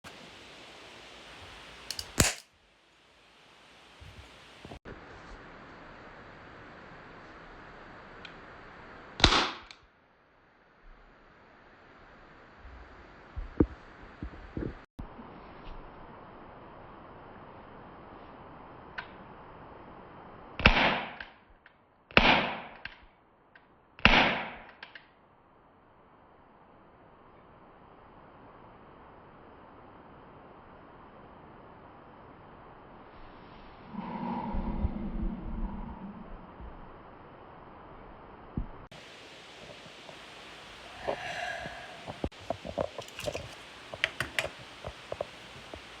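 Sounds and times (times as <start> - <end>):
toy cap gun bangs: 1.9 - 2.4
small clicks: 1.9 - 2.5.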